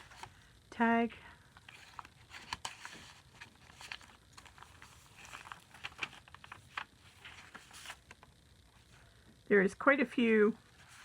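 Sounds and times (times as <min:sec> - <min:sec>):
paper rustling and clicks: 0:01.6 - 0:08.3.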